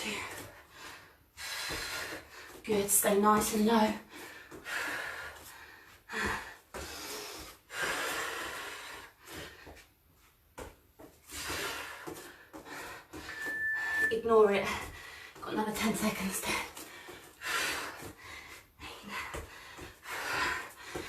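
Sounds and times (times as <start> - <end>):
woman breathing hard: 0.0 - 2.6, 4.1 - 9.9, 11.2 - 14.0, 16.8 - 21.0
short high beep: 13.3 - 14.3.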